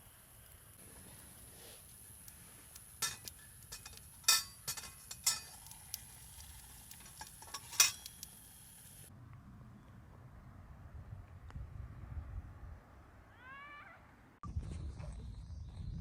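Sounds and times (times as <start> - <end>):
metal objects clinking: 3.0 - 5.8, 6.9 - 8.3.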